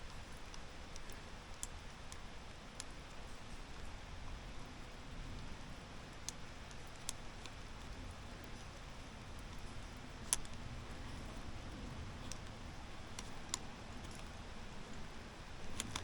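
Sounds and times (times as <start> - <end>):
faint background hiss: 0.0 - 16.0
sharp ticks: 12.2 - 16.0.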